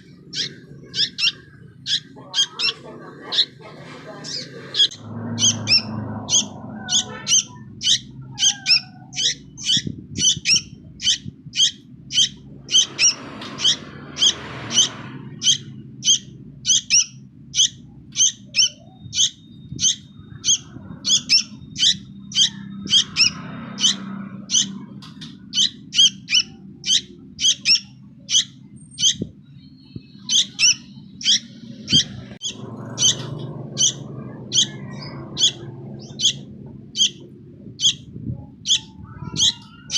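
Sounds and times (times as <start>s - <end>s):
young bird begging calls: 0.0s - 3.6s, 4.2s - 29.3s, 30.1s - 37.2s, 37.8s - 39.9s.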